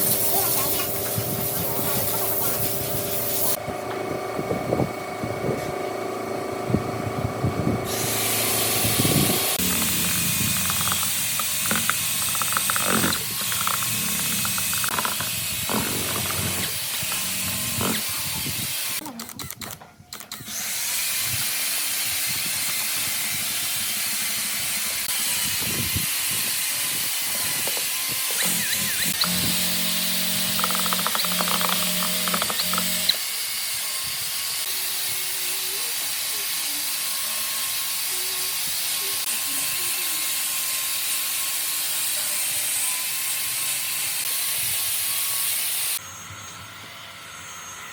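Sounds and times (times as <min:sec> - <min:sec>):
small motor humming and rattling: 0:00.0 - 0:47.9
scattered clicks: 0:09.6 - 0:15.3, 0:19.0 - 0:20.4, 0:30.4 - 0:33.2.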